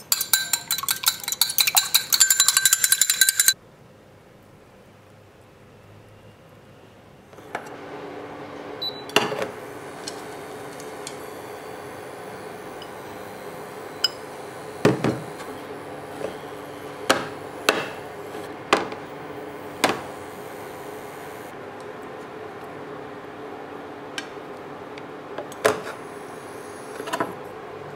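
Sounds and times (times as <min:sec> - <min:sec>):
utensils knocking on cookware: 0:00.0 - 0:03.6.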